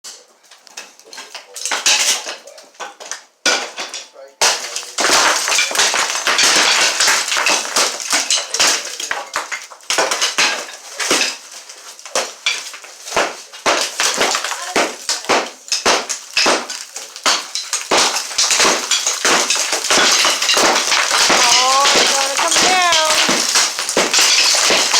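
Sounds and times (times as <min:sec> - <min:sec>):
debris clattering and crashing: 0:00.1 - 0:24.9
hammer strikes: 0:12.2 - 0:24.9.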